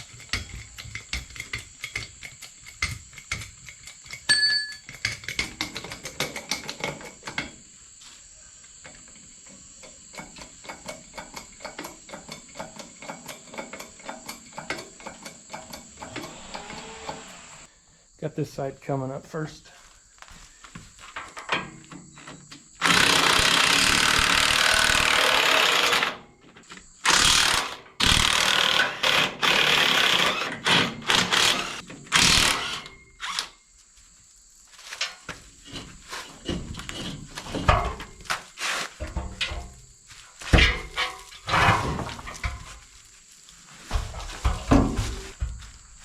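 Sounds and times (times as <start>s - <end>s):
impact wrench running: 22.8s - 26.2s, 27.1s - 33.4s.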